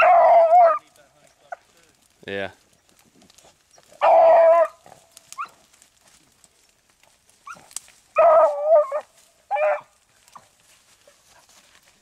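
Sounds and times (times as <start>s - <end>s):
hounds baying: 0.0s - 0.8s, 3.5s - 5.7s, 7.4s - 11.7s.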